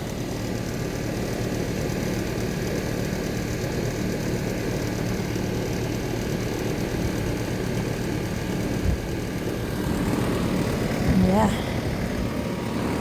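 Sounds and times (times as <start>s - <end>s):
condenser fan rushing: 0.0s - 13.0s
compressor hum: 7.1s - 13.0s.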